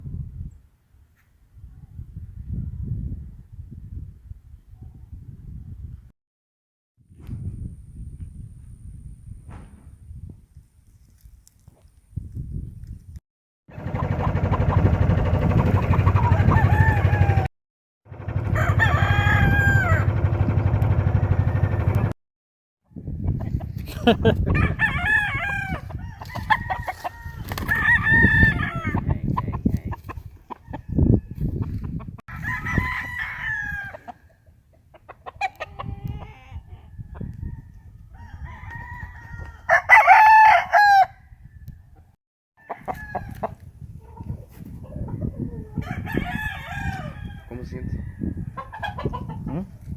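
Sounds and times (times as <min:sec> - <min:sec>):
loud steady low rumble: 0:13.8 - 0:17.5, 0:18.1 - 0:22.2
roosters crowing: 0:13.8 - 0:17.5, 0:18.2 - 0:20.6, 0:24.0 - 0:29.6, 0:30.5 - 0:34.4, 0:35.3 - 0:41.5, 0:42.6 - 0:43.6, 0:45.7 - 0:49.3.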